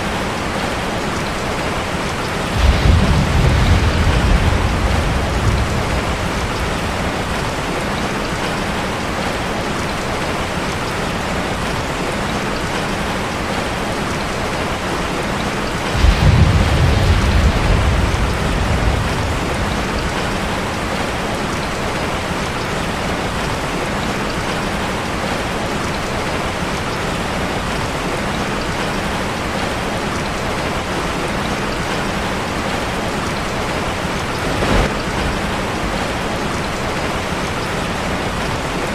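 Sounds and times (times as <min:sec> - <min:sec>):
rain on a metal roof: 0:00.0 - 0:38.9
thunder rumble: 0:01.8 - 0:09.3, 0:15.7 - 0:22.4, 0:33.6 - 0:38.8.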